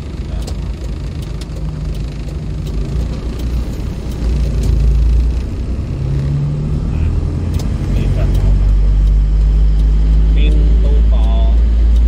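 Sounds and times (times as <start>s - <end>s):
diesel engine and road noise: 0.0s - 12.0s.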